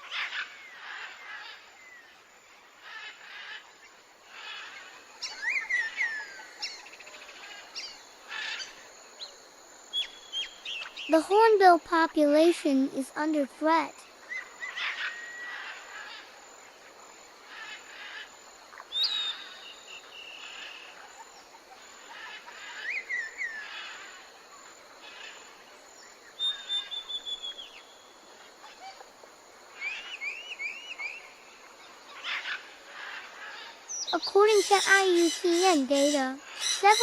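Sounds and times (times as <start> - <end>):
insects hissing: 0.0 - 37.0
birds whistling calls: 26.4 - 27.9, 29.8 - 31.3.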